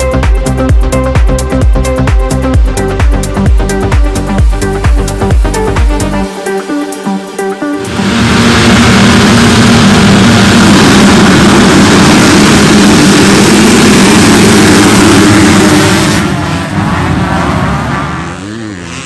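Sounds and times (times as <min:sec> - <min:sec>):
motocross bike engines revving: 0:08.0 - 0:19.0.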